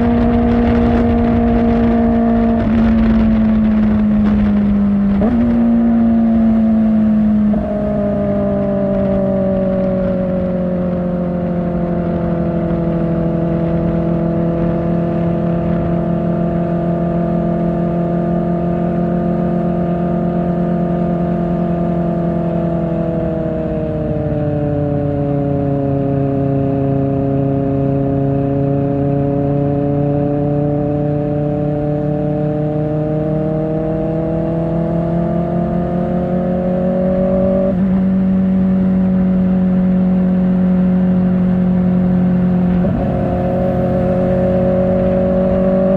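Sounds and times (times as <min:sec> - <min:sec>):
motorcycle engine cruising: 0:00.0 - 0:45.9.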